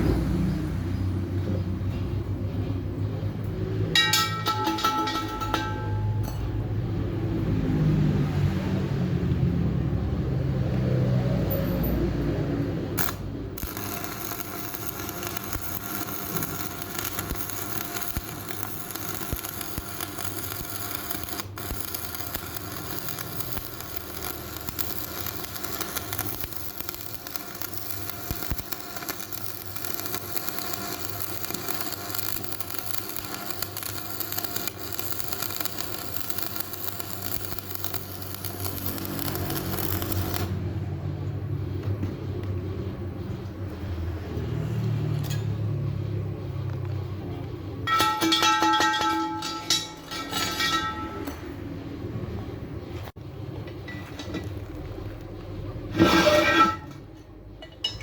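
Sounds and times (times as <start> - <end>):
electric arc welding crackling: 13.0 - 40.6.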